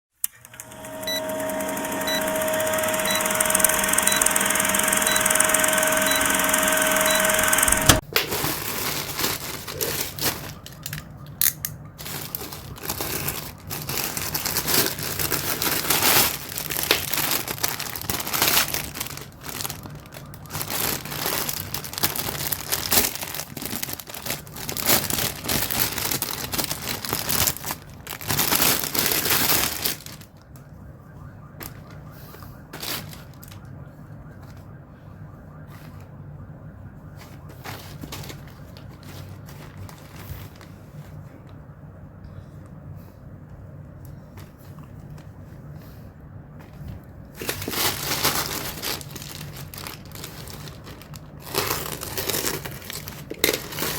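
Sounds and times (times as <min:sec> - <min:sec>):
steady hum with held tones: 0:00.4 - 0:08.0
packaging crinkling and rustling: 0:05.7 - 0:30.6, 0:32.7 - 0:33.7, 0:37.2 - 0:41.6, 0:46.6 - 0:53.9
wrapping tearing: 0:08.2 - 0:11.0, 0:12.0 - 0:30.4, 0:47.4 - 0:53.9.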